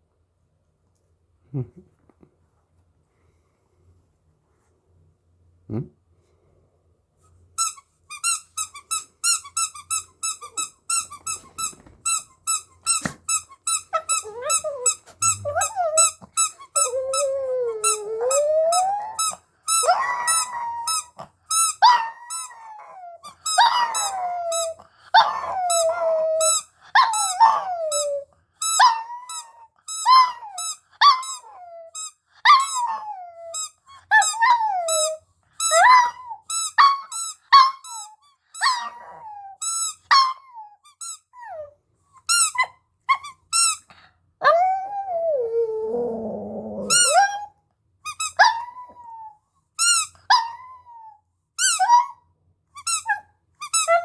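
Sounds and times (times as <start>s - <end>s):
dog howling and whining: 13.7s - 40.8s, 44.4s - 47.5s, 48.3s - 49.4s, 50.0s - 52.2s.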